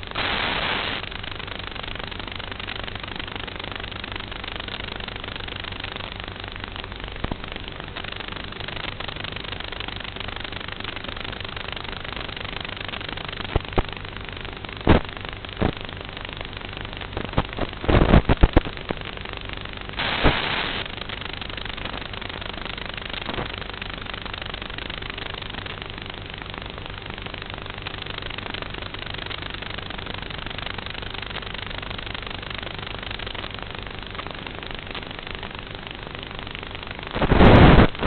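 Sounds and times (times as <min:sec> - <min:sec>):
crackles and clicks: 0:00.0 - 0:38.0
faint hum: 0:00.0 - 0:38.0.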